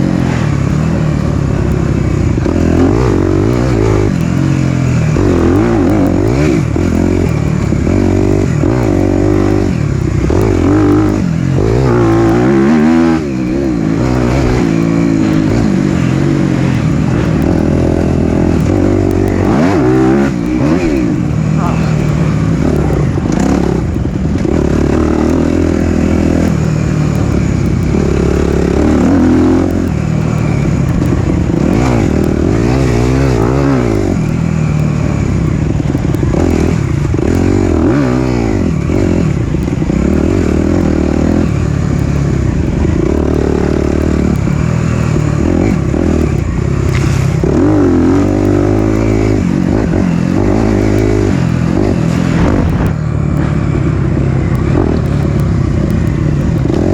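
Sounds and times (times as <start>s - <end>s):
dirt bike engine revving: 0.0s - 56.9s.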